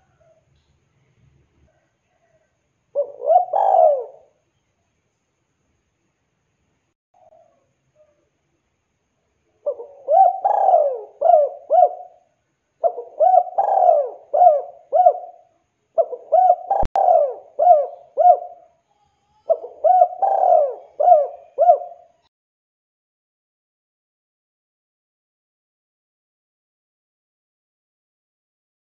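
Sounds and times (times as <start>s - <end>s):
dove cooing: 3.0s - 4.4s, 9.6s - 22.2s.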